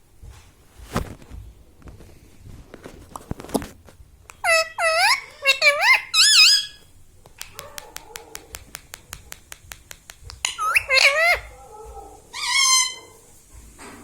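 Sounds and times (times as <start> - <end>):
parakeet calls: 4.4 - 6.9, 10.3 - 11.6, 12.3 - 13.2
sharp clicks: 7.2 - 10.6.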